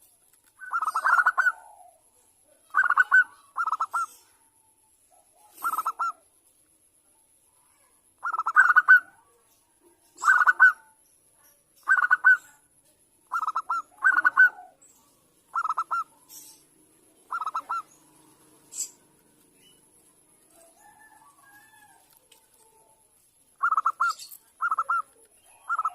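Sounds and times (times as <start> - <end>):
dove trilled cooing: 0.6 - 4.4, 5.2 - 6.2, 8.2 - 9.2, 10.2 - 11.0, 11.8 - 12.5, 13.3 - 19.1, 23.6 - 25.9.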